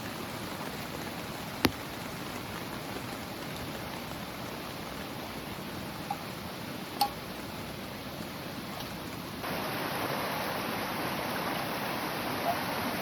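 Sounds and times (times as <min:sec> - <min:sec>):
heavy rain: 0:00.0 - 0:13.0
sharp drip: 0:07.0 - 0:07.2.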